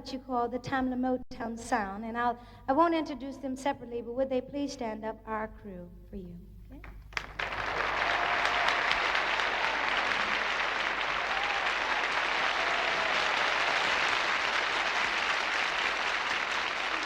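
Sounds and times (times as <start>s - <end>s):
audience applauding: 7.1s - 17.0s.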